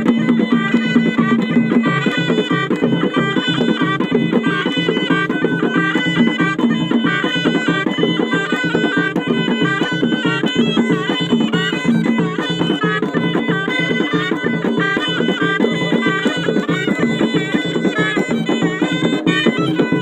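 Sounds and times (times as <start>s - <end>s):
double-reed shawm folk melody: 0.0s - 20.0s
rapid drumming: 0.0s - 20.0s.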